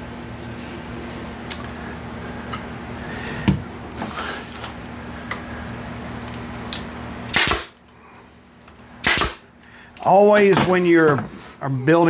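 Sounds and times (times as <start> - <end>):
low shop hum: 0.0 - 12.0
nail gun shot: 7.3 - 7.8, 9.0 - 9.5.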